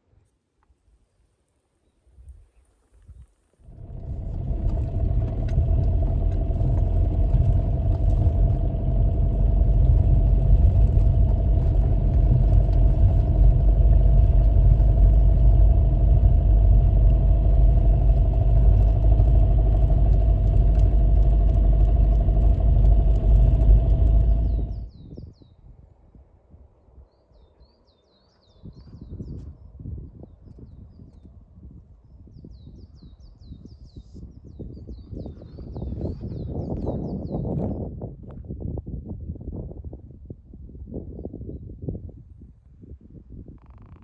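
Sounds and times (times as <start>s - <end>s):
vehicle engine running: 3.6s - 25.0s.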